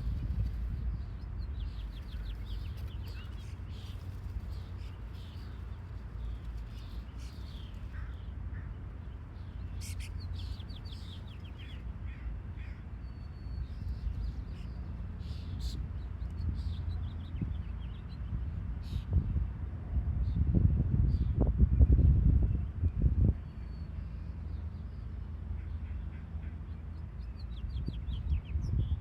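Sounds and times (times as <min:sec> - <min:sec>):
birds chirping: 0:00.0 - 0:19.1
steady low rumble: 0:00.0 - 0:29.0.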